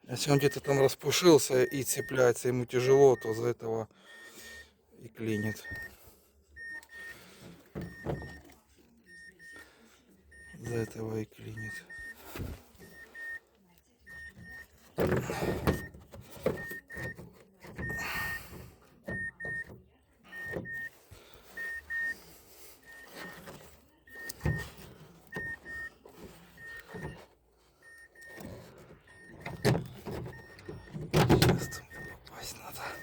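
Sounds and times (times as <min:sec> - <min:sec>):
car warning chime double beeps: 0:00.2 - 0:04.6, 0:05.2 - 0:06.0, 0:06.6 - 0:07.2, 0:07.8 - 0:09.6, 0:10.3 - 0:12.2, 0:12.8 - 0:27.2, 0:27.8 - 0:33.0
door parts knocking and clattering: 0:29.3 - 0:31.8.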